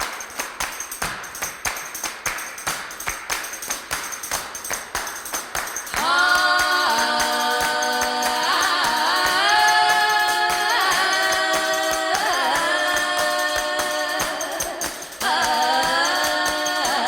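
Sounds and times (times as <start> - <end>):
fast hand drum beat: 0.0 - 17.0
voices holding a sustained chord: 6.0 - 17.0.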